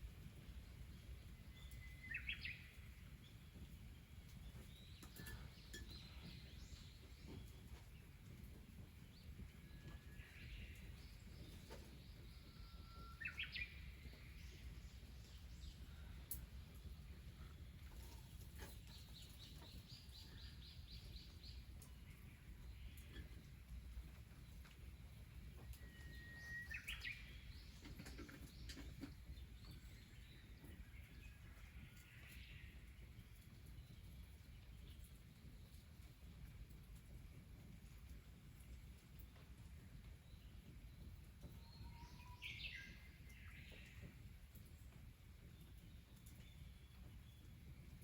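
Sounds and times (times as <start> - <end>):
low outdoor rumble: 0.0 - 48.0
faint birds chirping: 0.1 - 48.0
bird whistling call: 25.8 - 27.2.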